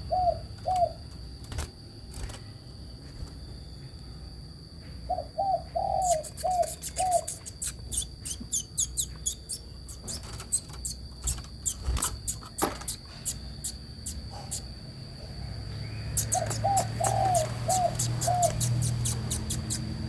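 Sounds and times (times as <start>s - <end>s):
bird calling: 5.1s - 14.7s, 15.8s - 20.0s
sharp high chirps and ticks: 6.0s - 14.7s, 15.8s - 20.0s.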